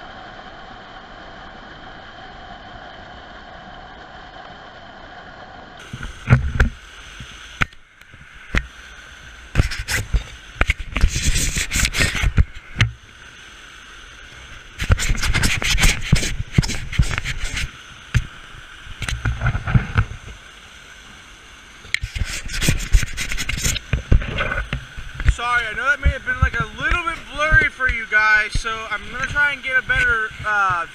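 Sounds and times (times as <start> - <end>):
creek water rushing: 0.0 - 30.9
rubbing noise on microphone: 9.5 - 12.8, 14.8 - 18.3, 19.0 - 20.3, 22.0 - 30.9.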